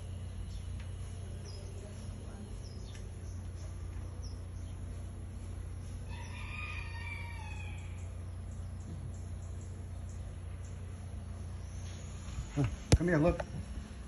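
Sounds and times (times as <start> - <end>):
steady low rumble: 0.0 - 6.4, 7.1 - 14.0
rooster crowing: 6.0 - 8.2.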